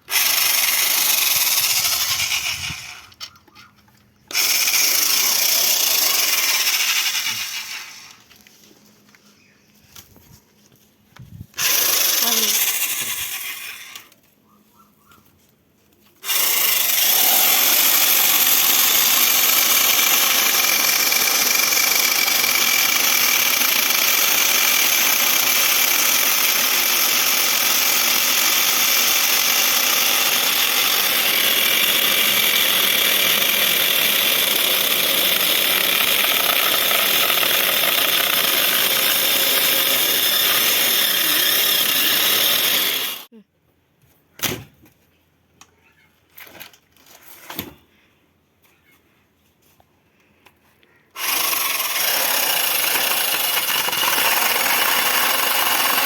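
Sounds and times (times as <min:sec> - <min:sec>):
electric chainsaw running: 0:00.0 - 0:03.2, 0:04.3 - 0:08.3, 0:11.6 - 0:14.1, 0:16.2 - 0:43.3, 0:51.2 - 0:56.0.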